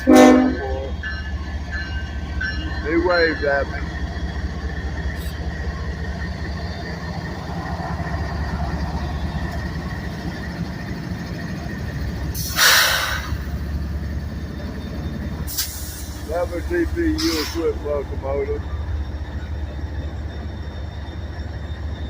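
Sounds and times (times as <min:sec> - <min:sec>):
locomotives rumbling: 0:00.0 - 0:22.0
air brake hiss: 0:12.3 - 0:13.5, 0:15.5 - 0:16.3, 0:17.2 - 0:17.8.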